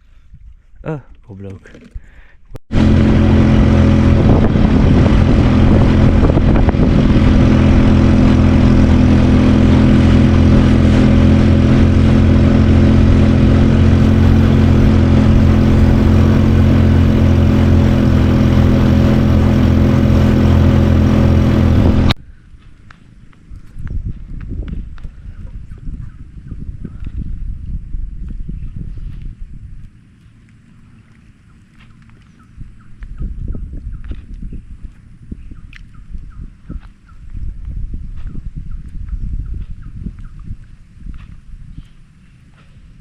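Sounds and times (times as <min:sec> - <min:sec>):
boat motor running: 0:02.7 - 0:22.2.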